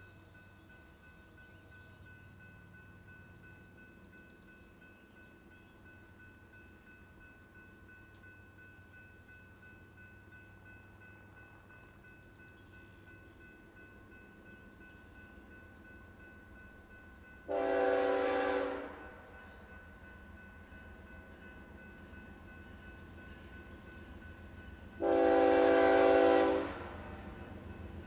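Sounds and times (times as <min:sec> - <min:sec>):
train rumbling: 0:00.0 - 0:28.0
locomotive air horn blasts: 0:17.5 - 0:19.2, 0:25.0 - 0:27.0.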